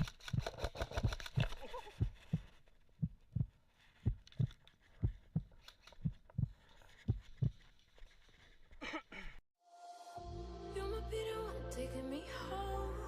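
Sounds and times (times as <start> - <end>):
low dull thumps: 2.0 - 7.5.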